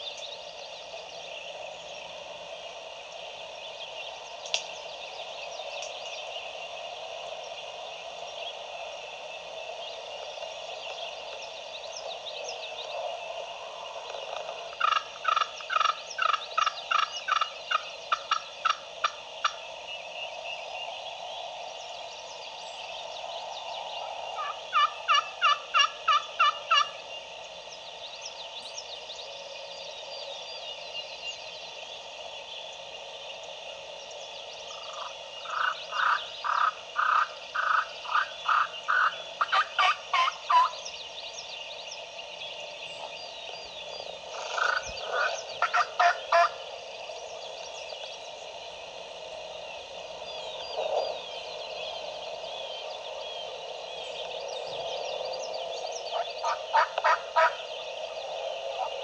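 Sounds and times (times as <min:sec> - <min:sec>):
faint songbird chirps: 0:00.0 - 0:59.0
turkey yelping: 0:24.4 - 0:26.9, 0:35.6 - 0:40.7, 0:44.6 - 0:46.5, 0:56.4 - 0:57.6.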